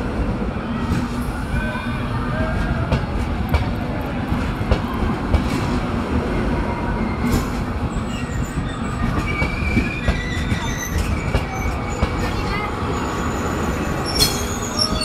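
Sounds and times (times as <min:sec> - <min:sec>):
train wheels rumbling and clicking: 0:02.3 - 0:15.0
high wheel squeals: 0:07.0 - 0:15.0.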